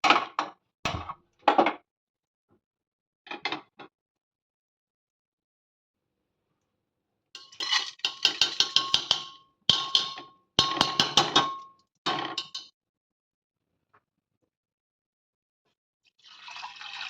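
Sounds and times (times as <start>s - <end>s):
metal utensil clinking steel bowl: 7.4s - 12.7s.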